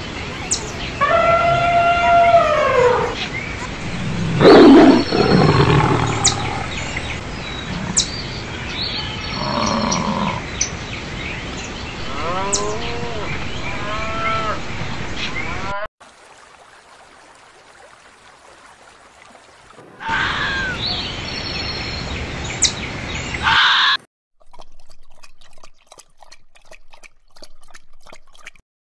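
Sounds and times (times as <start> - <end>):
animal calls: 0.1 - 8.4, 9.1 - 10.5, 20.0 - 21.1.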